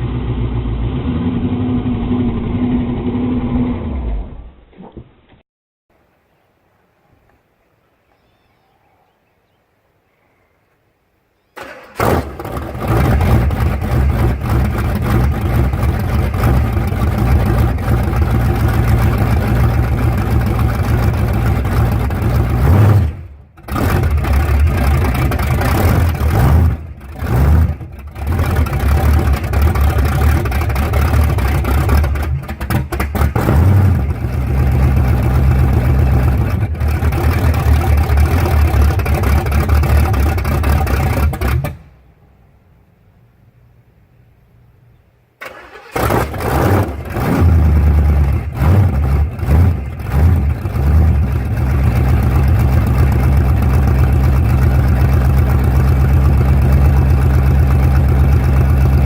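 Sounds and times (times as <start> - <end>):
car engine running loudly: 12.0 - 41.8, 45.8 - 59.0.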